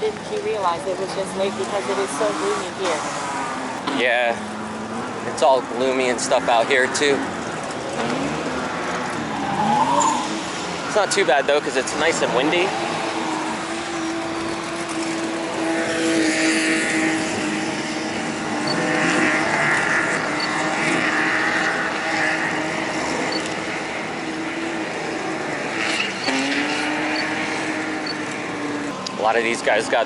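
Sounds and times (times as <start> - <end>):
car engine at high revs: 0.0 - 30.0
tyre squeal: 9.0 - 11.0.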